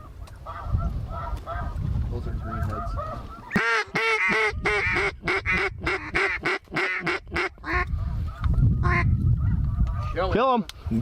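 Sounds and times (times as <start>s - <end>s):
duck call quacks: 2.9s - 7.9s.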